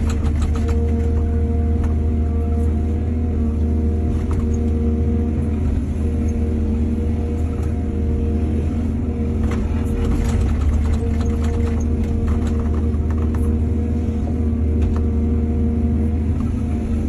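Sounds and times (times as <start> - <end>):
small clatters and knocks: 0.0 - 2.0, 9.4 - 13.6
diesel engine running: 0.0 - 17.0.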